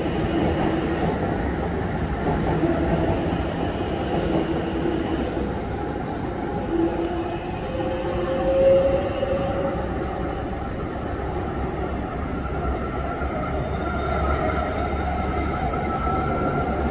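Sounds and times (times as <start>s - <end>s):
faint train whine: 0.0s - 16.9s
train wheels rumbling: 0.0s - 16.9s.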